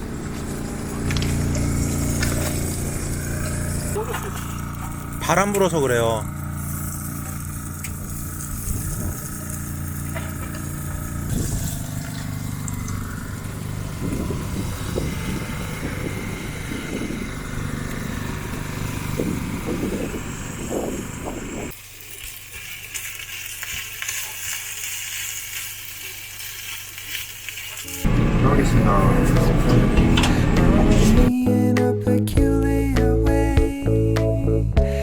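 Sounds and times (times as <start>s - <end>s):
gusting wind on microphone: 8.5s - 9.3s, 11.2s - 11.9s, 13.8s - 21.7s.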